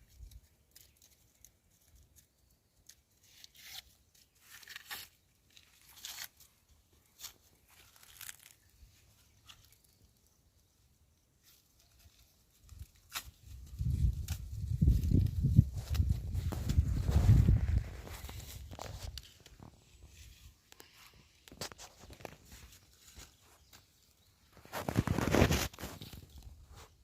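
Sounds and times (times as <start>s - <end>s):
dry husks tearing and crackling: 0.0s - 10.3s, 11.4s - 26.8s.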